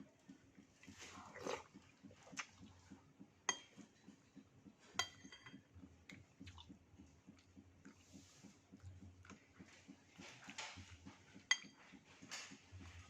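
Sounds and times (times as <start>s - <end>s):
utensil clinking against dish: 3.5s - 4.2s, 4.9s - 5.7s, 10.6s - 12.6s.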